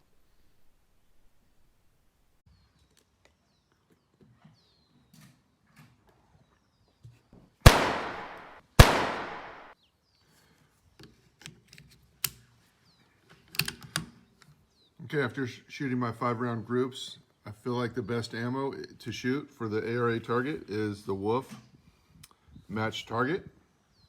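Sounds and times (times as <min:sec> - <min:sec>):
rifle shots with echo: 0:07.6 - 0:09.8
handling clicks: 0:07.7 - 0:09.7.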